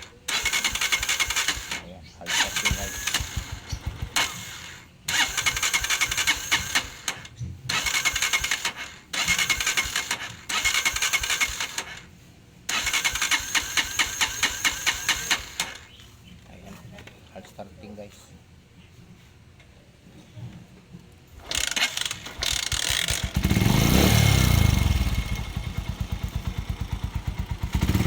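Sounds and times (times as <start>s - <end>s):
motorcycle engine sputtering: 0.0s - 12.1s, 12.7s - 16.0s, 21.4s - 28.0s.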